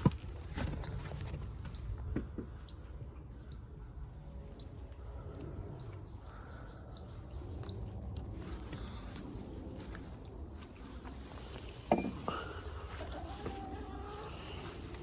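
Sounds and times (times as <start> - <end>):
small bird chirping: 5.8 - 10.4.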